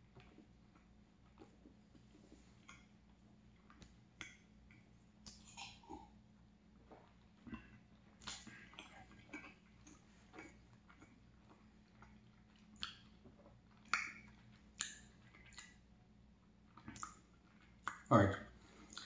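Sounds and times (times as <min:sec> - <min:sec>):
wet mouth clicks and lip smacks: 0:03.6 - 0:06.0, 0:06.9 - 0:15.8, 0:16.7 - 0:18.1, 0:18.8 - 0:19.0.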